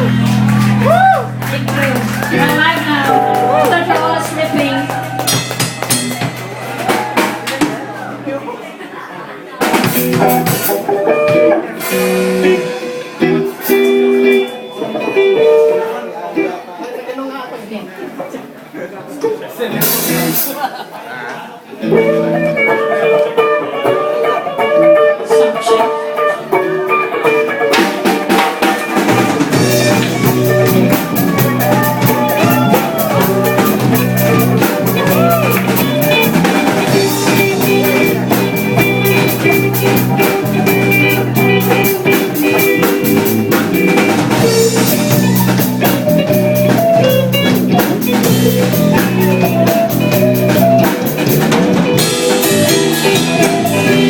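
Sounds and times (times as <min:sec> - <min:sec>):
drum hits: 0:00.0 - 0:08.1
bass line: 0:00.0 - 0:08.4, 0:29.0 - 0:54.0
guitar: 0:00.0 - 0:08.9, 0:09.5 - 0:17.1, 0:18.1 - 0:54.0.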